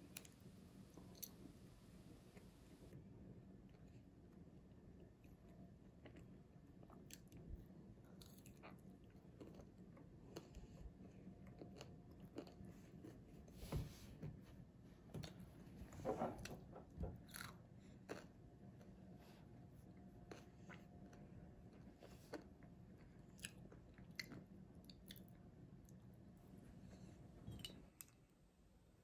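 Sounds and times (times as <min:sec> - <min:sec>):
chewing and biting food: 0:08.1 - 0:13.1.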